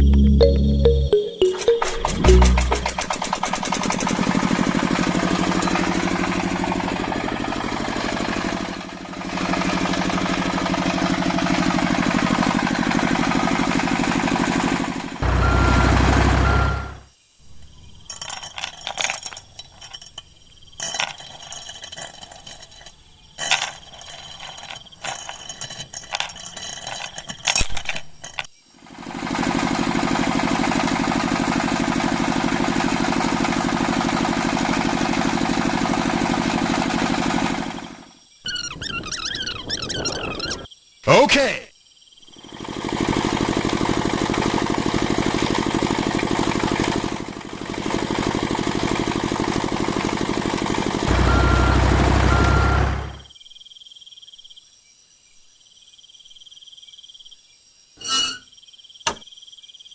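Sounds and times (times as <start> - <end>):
tractor engine running: 2.2 - 17.0, 29.4 - 38.0, 42.5 - 53.3
scattered clinks and knocks: 18.1 - 28.5.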